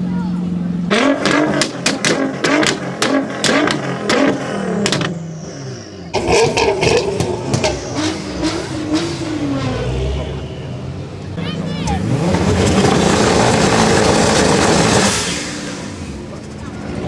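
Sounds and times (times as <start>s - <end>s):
car engine revving: 0.0s - 17.0s
exhaust cracks and pops: 1.0s - 5.3s, 6.2s - 9.2s.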